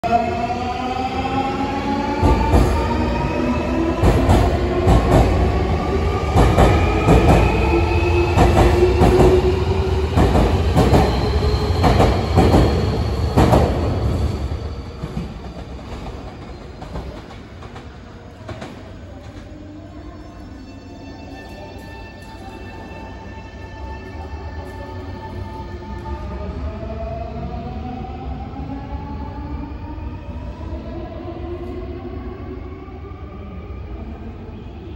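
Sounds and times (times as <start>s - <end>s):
train rumble: 2.0s - 20.2s.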